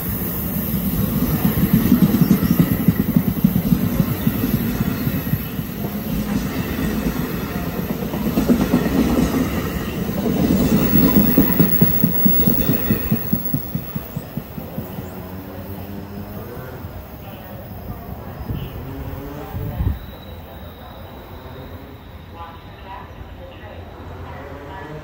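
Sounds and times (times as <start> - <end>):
train wheels clattering on track: 0.0 - 16.6.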